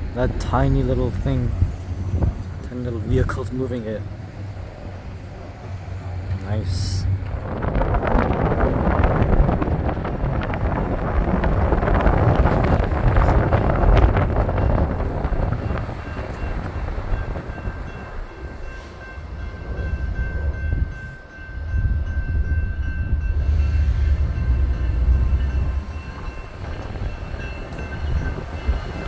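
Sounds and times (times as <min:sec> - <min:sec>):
train rumbling on tracks: 0:00.0 - 0:29.0.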